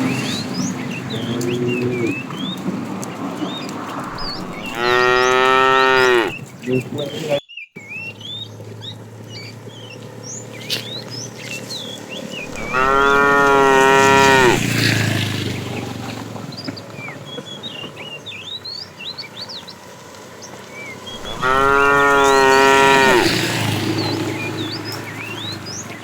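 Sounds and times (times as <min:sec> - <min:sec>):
cattle mooing: 0:04.1 - 0:06.4, 0:12.4 - 0:15.1, 0:21.1 - 0:24.2.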